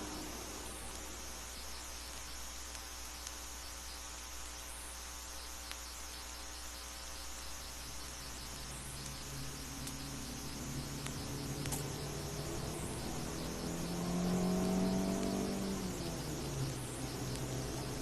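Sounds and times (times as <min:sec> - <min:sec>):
low engine drone: 0:00.0 - 0:02.1, 0:07.7 - 0:18.0
low hum: 0:00.0 - 0:04.1, 0:04.9 - 0:18.0
insects trilling: 0:00.0 - 0:18.0.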